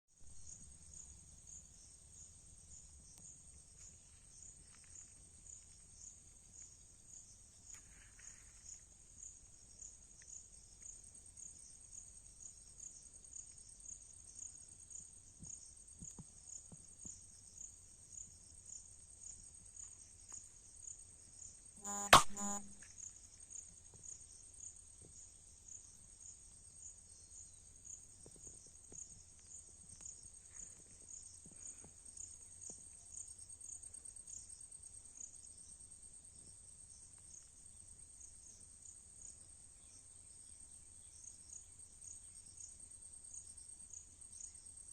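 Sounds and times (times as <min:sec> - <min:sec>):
insect chirping: 0:20.8 - 0:22.8
sharp knock: 0:21.8 - 0:22.8.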